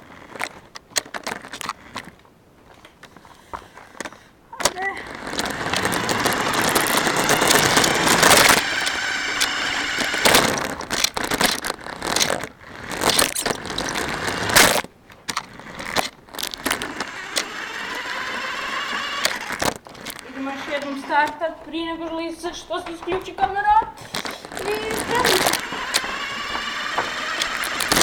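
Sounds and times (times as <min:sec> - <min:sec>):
crackling: 0:00.0 - 0:28.0
chassis knocks and rattles: 0:04.6 - 0:20.2, 0:22.5 - 0:28.0
toy car motor whine: 0:04.9 - 0:10.9, 0:12.9 - 0:14.8, 0:15.6 - 0:21.3, 0:24.6 - 0:28.0.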